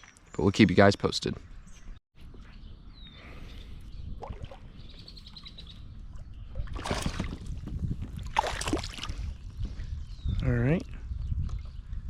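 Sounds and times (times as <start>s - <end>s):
small birds chirping: 0.0s - 7.4s, 9.1s - 12.0s
low rumble of wind: 1.4s - 12.0s
water: 4.1s - 9.4s
splash: 6.6s - 7.5s, 8.2s - 9.1s.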